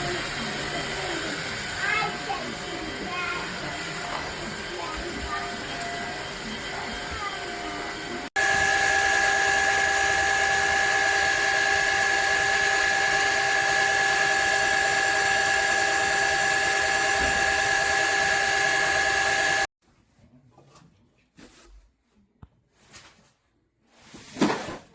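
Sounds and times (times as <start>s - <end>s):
vacuum mop motor running: 0.0s - 19.7s.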